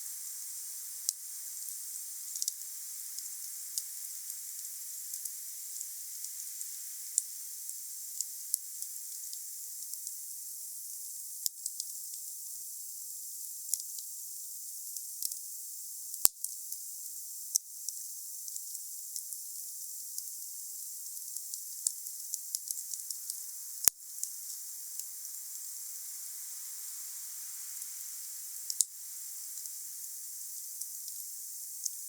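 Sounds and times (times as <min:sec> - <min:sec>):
wood fire hissing and crackling: 0:00.0 - 0:10.1, 0:20.7 - 0:32.0.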